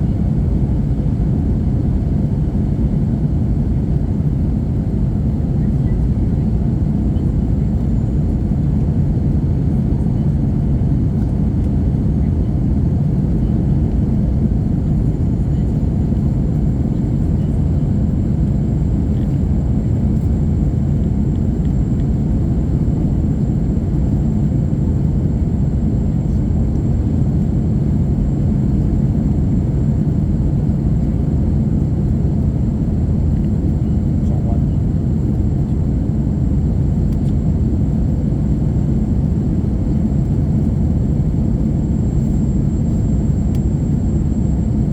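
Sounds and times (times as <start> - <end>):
airplane cabin rumble: 0.0 - 44.9
faint high whine: 32.4 - 44.9.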